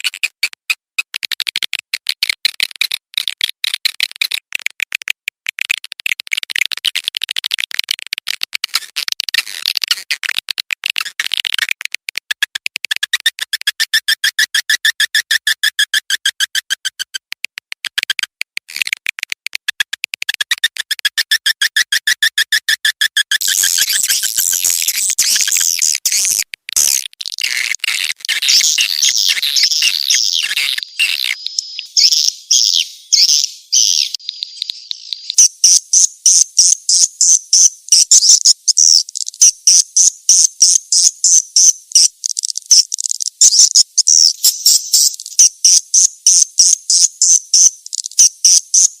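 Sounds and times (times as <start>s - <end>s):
bird chirps through a speaker: 23.2s - 49.0s.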